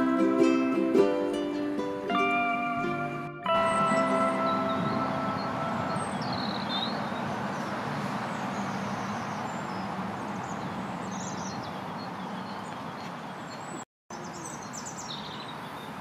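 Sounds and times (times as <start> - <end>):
background music held notes: 0.0 - 7.0
bird chirps: 3.5 - 16.0.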